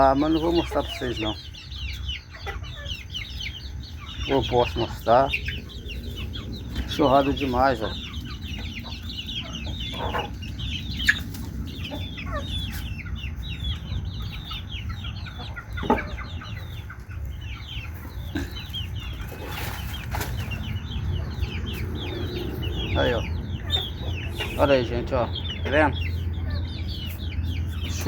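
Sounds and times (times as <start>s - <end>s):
chicks peeping: 0.0s - 28.0s.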